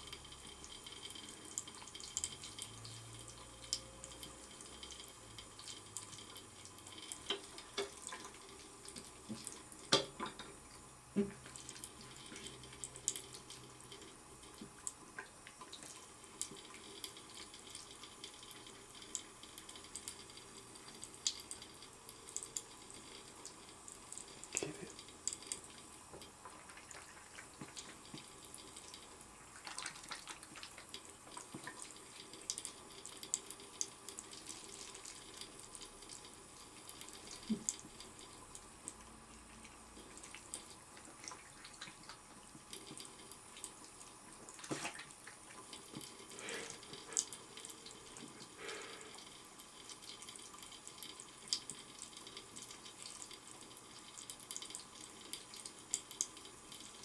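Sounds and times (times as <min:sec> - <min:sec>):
tap water running into sink: 0:00.0 - 0:57.0
water splashes and knocks: 0:44.6 - 0:45.2.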